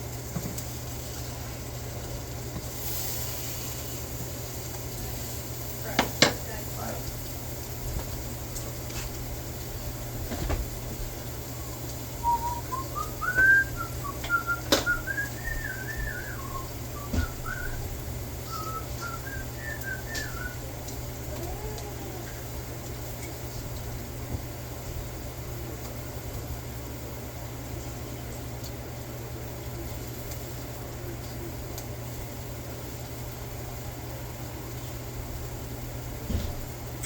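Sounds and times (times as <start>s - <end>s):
steady low hum: 0.0s - 37.0s
person whistling a tune: 11.6s - 20.6s.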